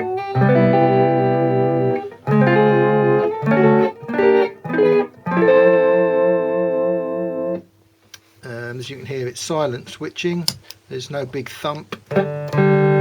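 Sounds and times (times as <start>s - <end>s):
electric guitar chords with vibrato: 0.0s - 7.7s, 12.1s - 13.0s.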